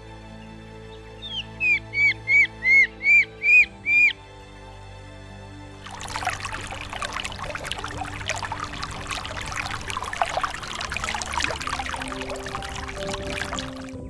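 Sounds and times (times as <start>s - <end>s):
water splashing and trickling: 5.8s - 14.0s.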